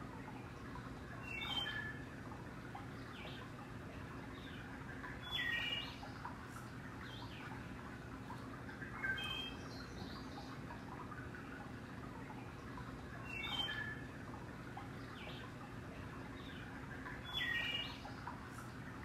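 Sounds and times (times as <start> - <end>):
steady low hum: 0.0 - 19.0
birds chirping: 4.3 - 7.6, 8.8 - 11.6, 16.3 - 18.9.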